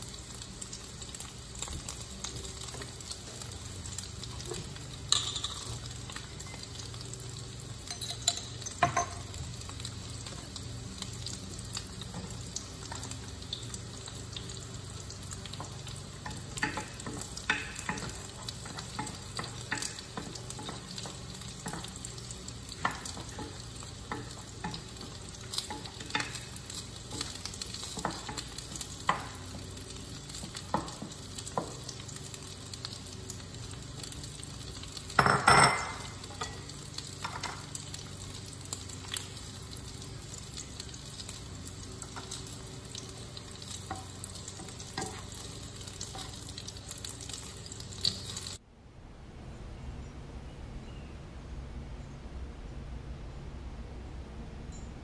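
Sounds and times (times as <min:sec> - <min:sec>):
food sizzling in pans: 0:00.0 - 0:48.6
spoon stirring in pan: 0:10.2 - 0:32.1, 0:41.0 - 0:48.4.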